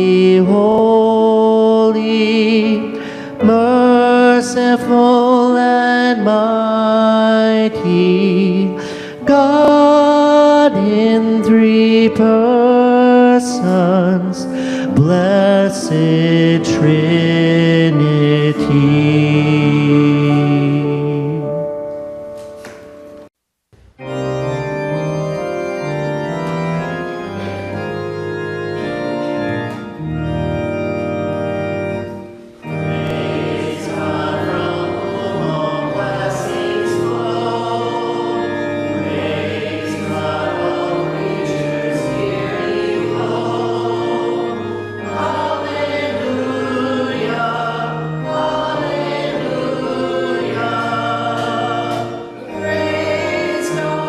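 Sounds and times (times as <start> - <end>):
group singing a hymn: 0.0 - 21.6, 32.7 - 54.0
church organ chords: 0.0 - 23.3, 23.9 - 54.0.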